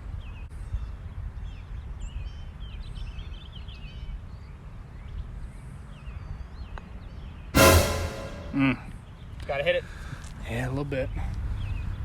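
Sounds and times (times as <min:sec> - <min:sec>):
sudden loud sound: 0:07.6 - 0:08.8.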